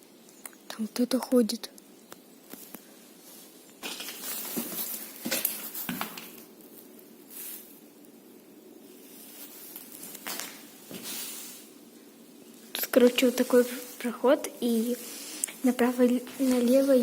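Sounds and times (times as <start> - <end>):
footsteps with rustling: 2.5 - 7.8, 8.9 - 11.6, 12.6 - 17.0.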